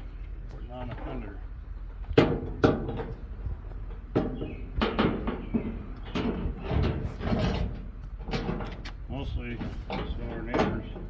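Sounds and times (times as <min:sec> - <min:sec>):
metal panel clanking against car: 0:09.6 - 0:11.0.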